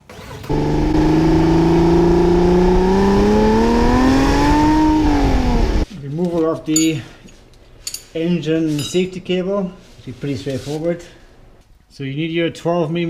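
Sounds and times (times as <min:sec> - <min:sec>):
car engine revving: 0:00.2 - 0:05.8.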